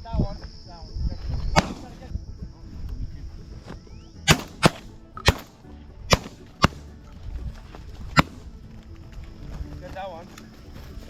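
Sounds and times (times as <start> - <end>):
shotguns firing: 1.6 - 2.1, 4.3 - 6.9, 8.1 - 8.5.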